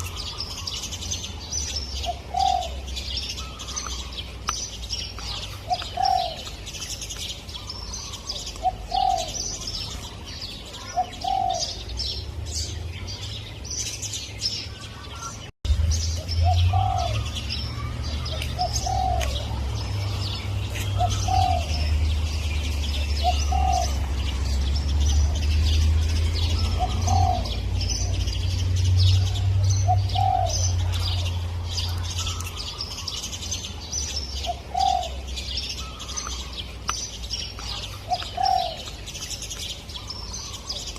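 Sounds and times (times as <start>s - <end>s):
small birds chirping: 0.0s - 40.9s
dove cooing: 2.0s - 4.1s, 5.2s - 6.6s, 7.6s - 10.1s, 10.7s - 12.0s, 16.4s - 22.0s, 22.9s - 24.1s, 26.5s - 28.2s, 29.2s - 33.2s, 34.4s - 36.4s, 37.6s - 39.0s.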